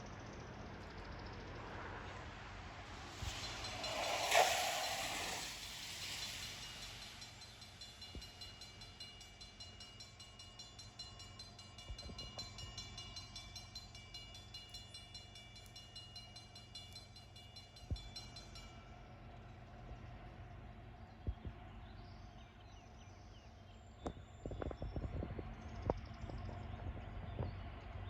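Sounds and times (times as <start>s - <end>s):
train wheels clicking: 2.9s - 18.8s
thin high tones: 3.1s - 9.4s.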